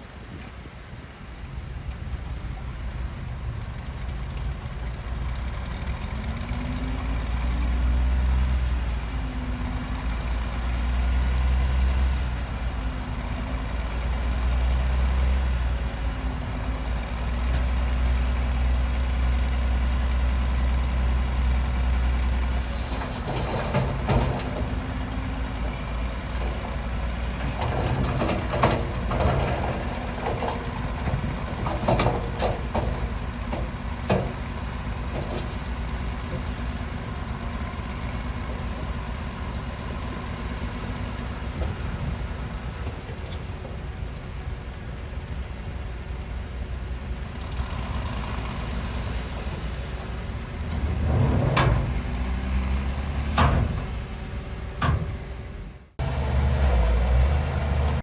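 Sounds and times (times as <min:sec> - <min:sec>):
heavy diesel engine rumbling: 0:00.0 - 0:58.0
metallic clanks and knocks: 0:22.6 - 0:36.5, 0:50.7 - 0:52.6, 0:53.2 - 0:54.0, 0:54.8 - 0:55.4.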